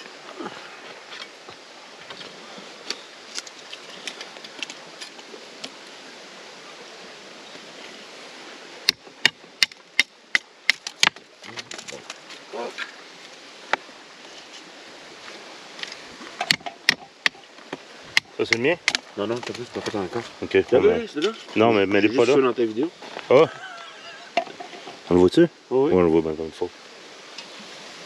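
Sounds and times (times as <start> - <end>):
outdoor background noise: 0.0 - 28.0
sharp clicks or knocks: 16.4 - 17.4.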